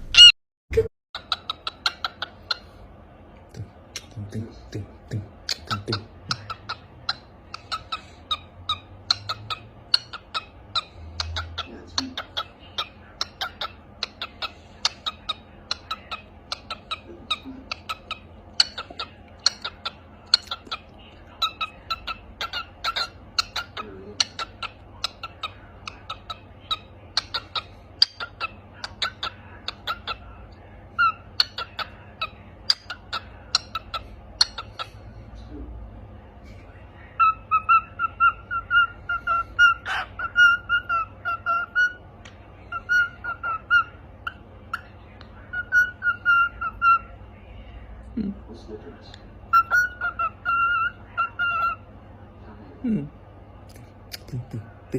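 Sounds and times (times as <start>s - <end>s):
lovebird chirping: 0.0s - 0.3s, 1.2s - 2.8s, 4.0s - 30.3s, 37.2s - 47.2s, 49.4s - 51.8s.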